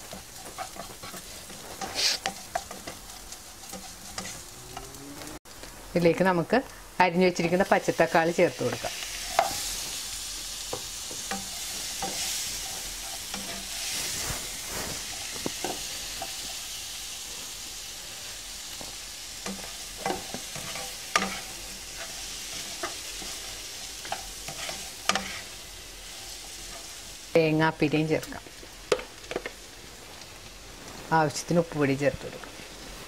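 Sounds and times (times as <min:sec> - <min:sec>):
metal spatula scraping a pan: 0:00.0 - 0:04.9, 0:08.8 - 0:10.0, 0:11.1 - 0:16.6, 0:18.8 - 0:27.0
tomatoes sizzling in hot oil: 0:00.0 - 0:33.0.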